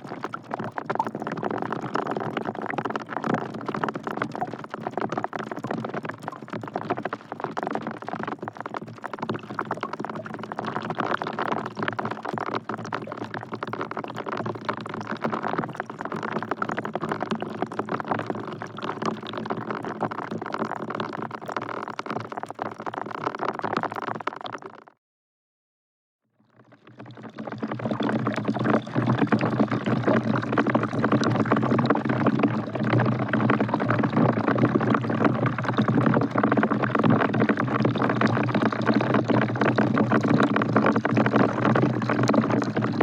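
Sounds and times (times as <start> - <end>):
rain dripping into a bucket: 0.0 - 24.9, 26.5 - 43.0.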